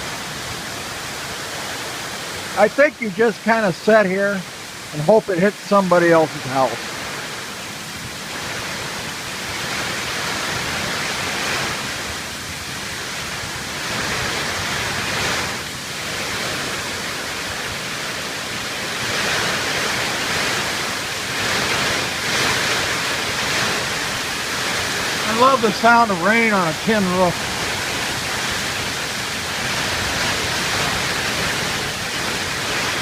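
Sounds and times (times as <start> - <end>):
heavy rain on a tin roof: 0.0 - 33.0.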